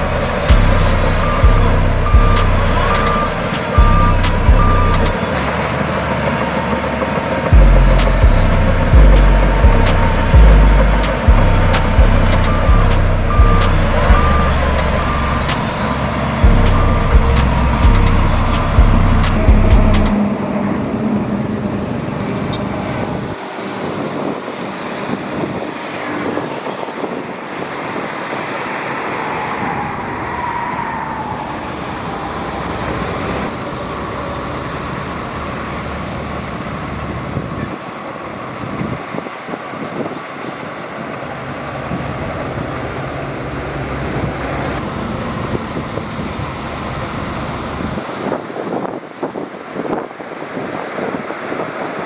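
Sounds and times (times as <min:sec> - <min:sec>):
bulldozer diesel engine under load: 0:00.0 - 0:25.4, 0:32.4 - 0:48.3.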